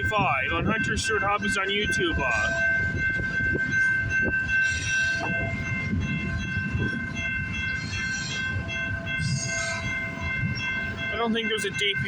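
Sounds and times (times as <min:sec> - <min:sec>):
freight train cars rumbling: 0:00.0 - 0:12.0
high-pitched ringing tone: 0:02.4 - 0:11.2.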